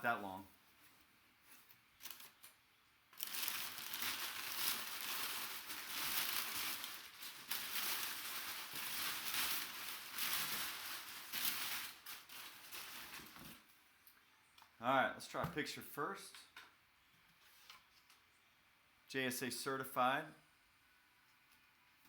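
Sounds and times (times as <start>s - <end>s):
packaging crinkling and tearing: 2.0s - 13.7s.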